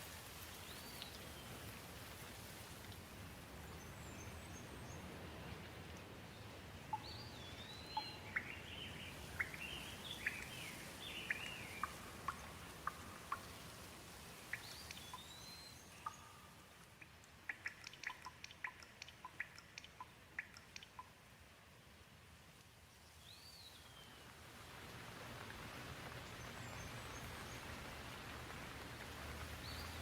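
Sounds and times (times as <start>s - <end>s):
gentle rain falling: 0.0s - 30.0s
drips ticking: 6.9s - 21.3s
bird whistling song: 7.0s - 12.0s, 14.5s - 16.4s.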